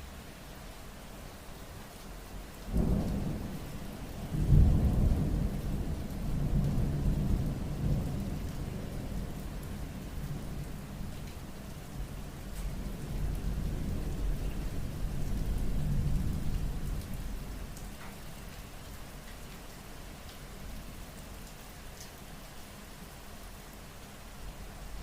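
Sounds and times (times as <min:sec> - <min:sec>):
steady rain: 0:00.0 - 0:25.0
thunder claps and rumble: 0:02.7 - 0:11.3, 0:11.9 - 0:17.9.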